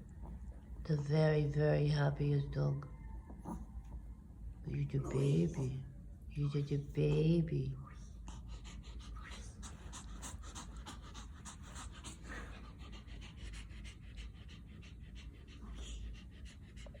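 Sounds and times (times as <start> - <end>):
dog panting: 8.0 - 17.0.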